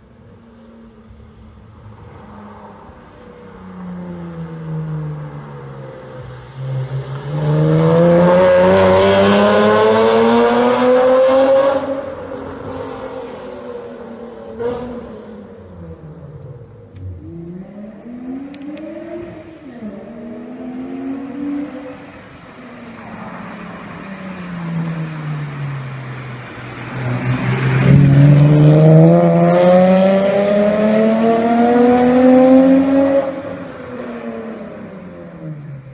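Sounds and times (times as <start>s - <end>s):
car accelerating with loud exhaust: 0.8s - 24.0s, 24.9s - 35.9s
engine revving: 6.8s - 12.7s, 26.9s - 34.1s.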